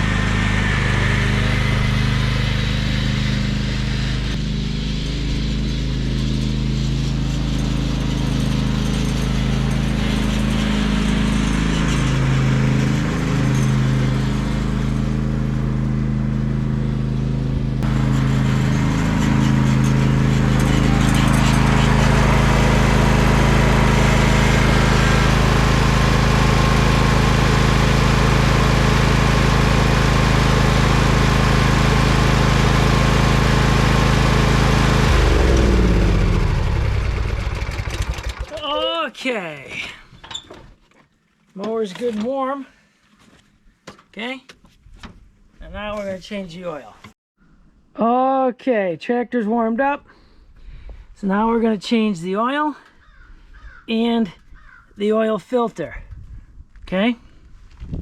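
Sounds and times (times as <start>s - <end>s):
riding mower engine running: 0.0s - 39.0s.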